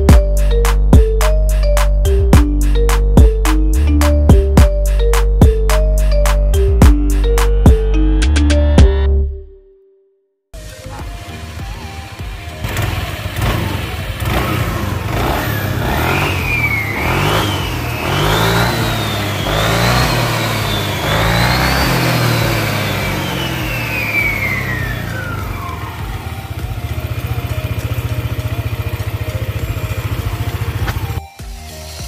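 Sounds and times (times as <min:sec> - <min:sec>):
scooter engine revving: 0:10.6 - 0:31.2.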